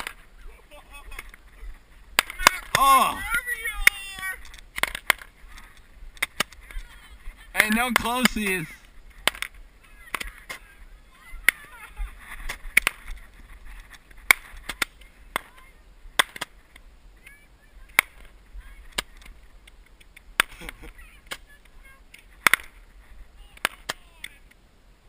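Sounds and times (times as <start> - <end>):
roman candles popping: 7.6 - 10.6.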